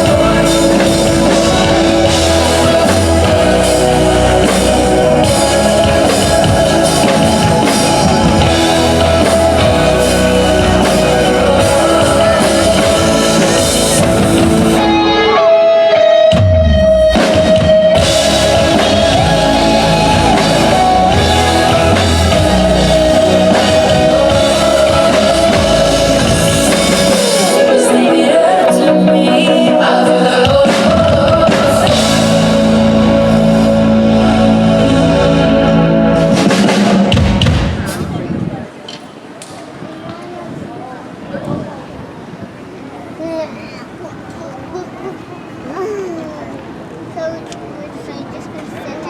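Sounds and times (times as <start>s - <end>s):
pop-rock band music: 0.0s - 38.2s.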